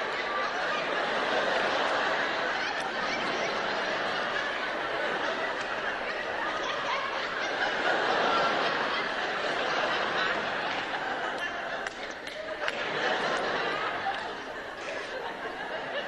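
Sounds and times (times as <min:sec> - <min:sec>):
audience laughing: 0:00.0 - 0:16.0.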